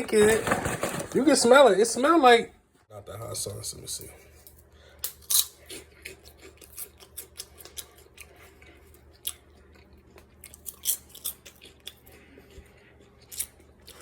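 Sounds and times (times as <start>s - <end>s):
crunchy pork rinds being chewed: 4.5s - 14.0s.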